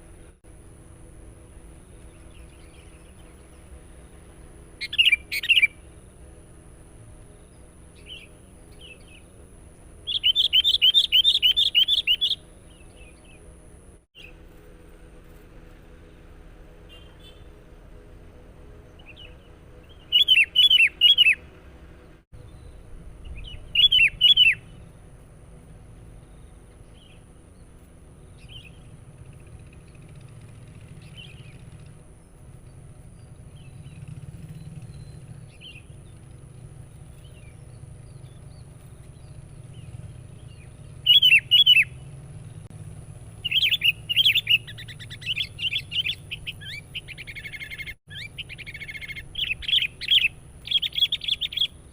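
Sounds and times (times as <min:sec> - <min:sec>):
low steady hum: 0:00.0 - 0:51.9
bulbul calling: 0:04.8 - 0:06.1, 0:07.4 - 0:13.4, 0:19.0 - 0:21.4, 0:22.4 - 0:24.9, 0:28.3 - 0:42.7, 0:43.3 - 0:51.9
faint bird chirps: 0:10.0 - 0:13.5, 0:22.4 - 0:24.9, 0:26.2 - 0:42.6, 0:43.4 - 0:51.9.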